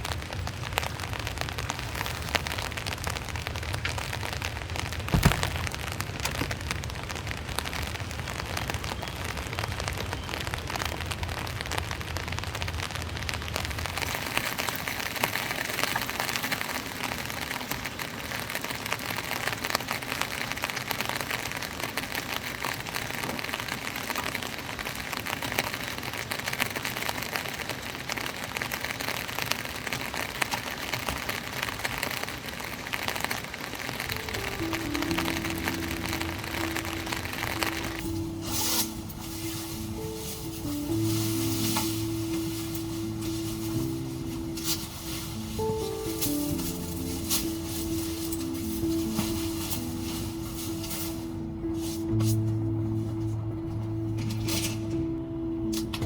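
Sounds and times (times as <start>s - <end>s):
heavy rain falling: 0.0s - 56.0s
sharp thump: 5.1s - 5.8s
low wind rumble: 31.5s - 56.0s.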